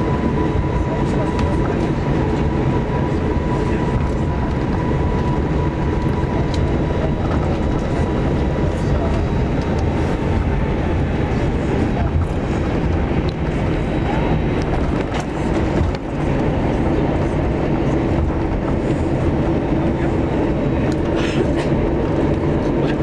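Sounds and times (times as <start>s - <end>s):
airplane cabin rumble: 0.0s - 23.0s.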